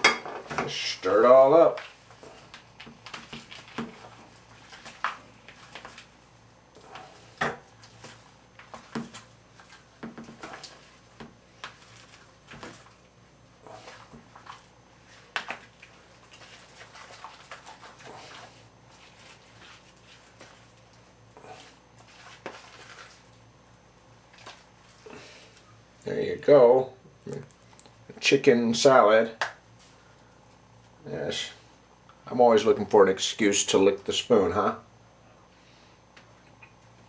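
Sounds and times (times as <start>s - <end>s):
soft squelching of food: 1.7s - 26.1s, 27.2s - 28.1s.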